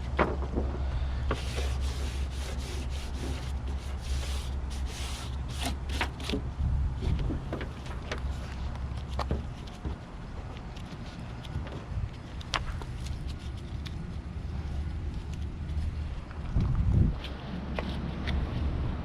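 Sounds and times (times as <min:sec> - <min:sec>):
steady low hum: 0:00.0 - 0:19.0
blade scraping: 0:01.3 - 0:06.4.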